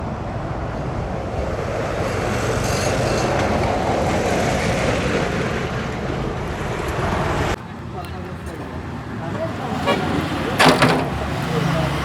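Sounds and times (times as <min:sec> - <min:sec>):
heavy machinery rumbling: 0:07.6 - 0:12.0.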